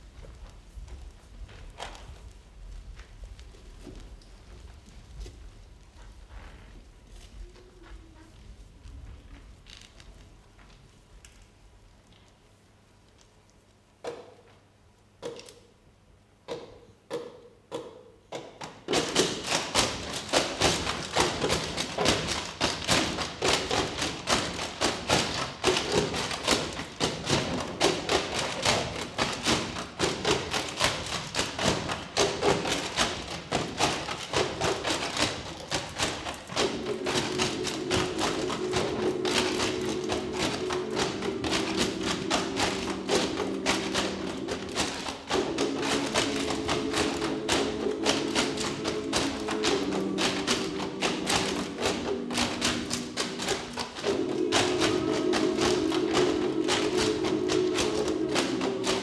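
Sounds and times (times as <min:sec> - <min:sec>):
percussion taps and thumps: 0:14.0 - 0:15.8, 0:16.4 - 0:59.0.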